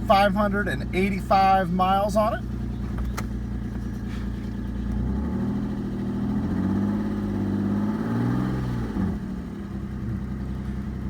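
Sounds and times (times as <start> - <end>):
car engine revving from idle: 2.1 - 11.0.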